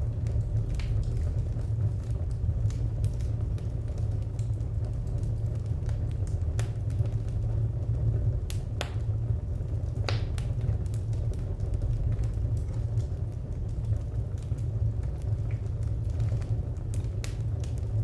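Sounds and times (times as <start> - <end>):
low rumble of flames: 0.0 - 18.0
wood fire crackling: 0.0 - 18.0.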